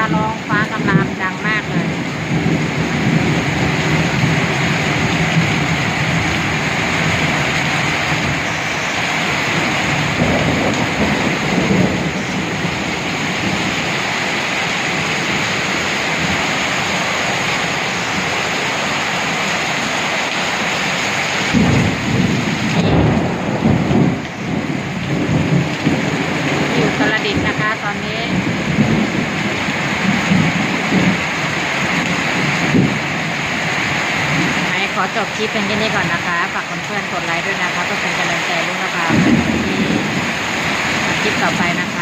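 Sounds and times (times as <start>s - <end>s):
heavy rain pouring: 0.0s - 42.0s
thunder rumbling: 0.0s - 42.0s.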